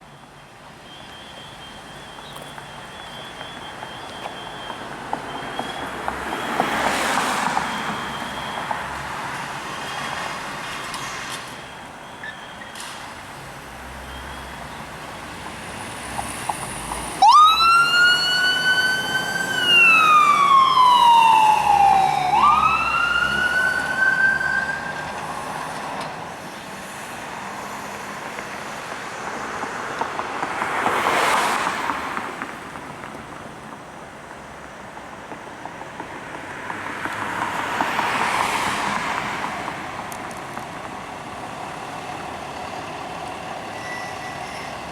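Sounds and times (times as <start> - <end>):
road traffic passing: 0.0 - 44.9
emergency vehicle siren wailing: 0.2 - 13.0, 17.0 - 26.3.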